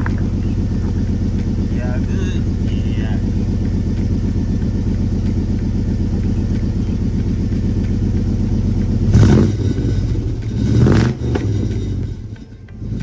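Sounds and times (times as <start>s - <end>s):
truck engine idling and revving: 0.0s - 13.0s.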